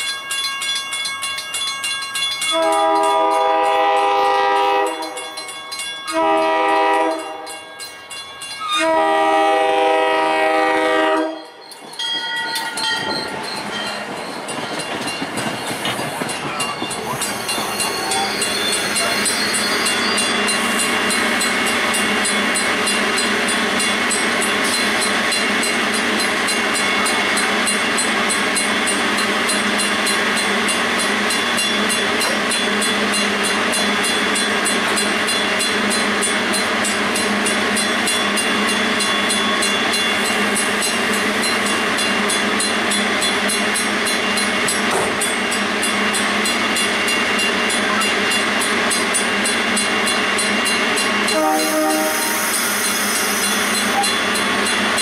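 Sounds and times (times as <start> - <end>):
stationary train hissing: 15.5 - 55.0.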